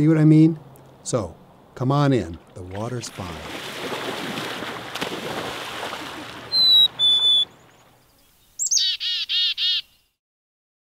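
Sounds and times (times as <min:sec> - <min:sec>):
water splashing from swimming: 0:02.3 - 0:08.0
bird harsh calls: 0:06.1 - 0:10.2
bird whistled notes: 0:06.5 - 0:10.1.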